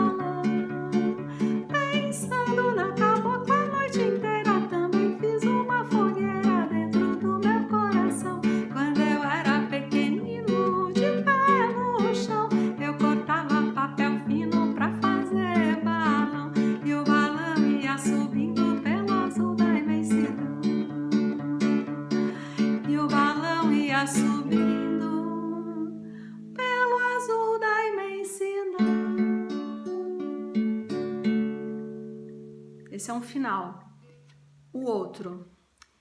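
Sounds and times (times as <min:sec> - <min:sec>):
strummed acoustic guitar: 0:00.0 - 0:27.0
woman singing: 0:00.0 - 0:30.6.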